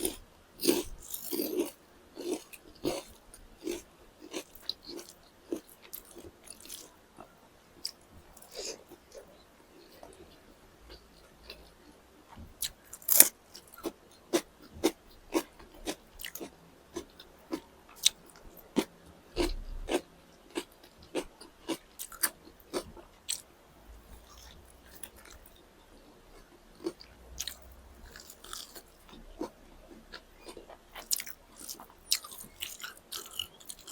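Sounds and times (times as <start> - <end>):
crunchy chewing and biting: 0.0 - 7.0, 12.6 - 23.5, 26.8 - 33.9.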